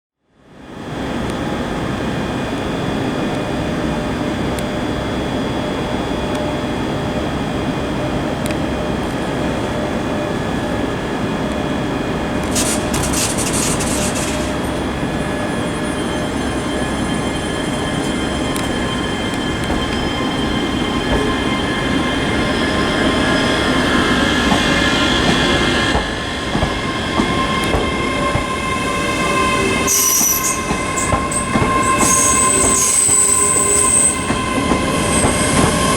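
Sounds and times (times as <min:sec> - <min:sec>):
train running noise: 0:00.8 - 0:35.9
train wheels squealing: 0:12.4 - 0:35.9
high screeches: 0:12.5 - 0:19.6, 0:27.4 - 0:35.9.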